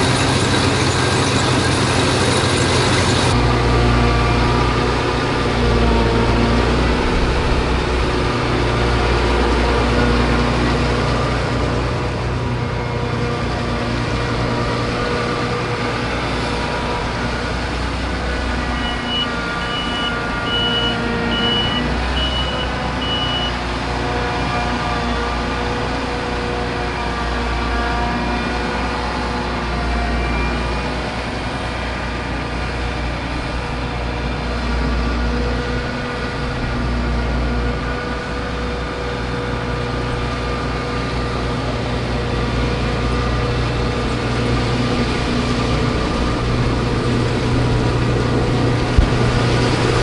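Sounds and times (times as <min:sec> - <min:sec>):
diesel engine running: 0:00.0 - 0:50.0
reversing alarm beeps: 0:18.7 - 0:23.7.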